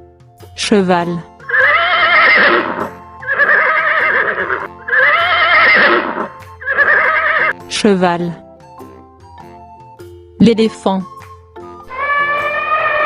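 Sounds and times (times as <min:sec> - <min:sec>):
horse whinnying: 0:01.4 - 0:07.6, 0:11.9 - 0:13.0.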